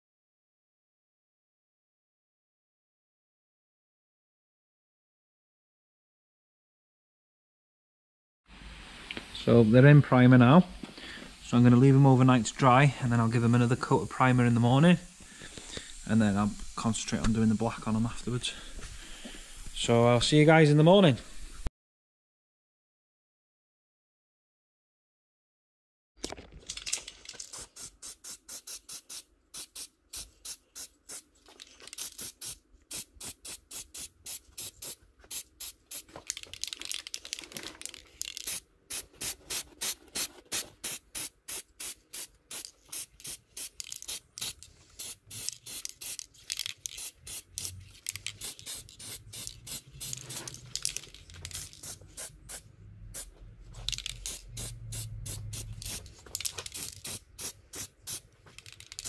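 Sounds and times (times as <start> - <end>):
spray paint hissing in bursts: 12.9 - 17.9, 27.4 - 36.7, 38.2 - 59.0.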